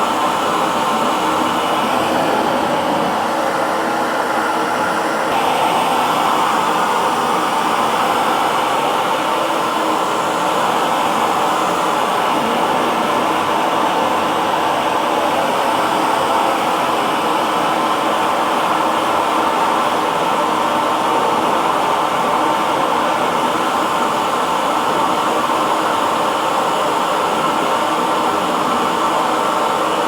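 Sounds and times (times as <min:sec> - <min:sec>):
hair dryer running: 0:00.0 - 0:30.0.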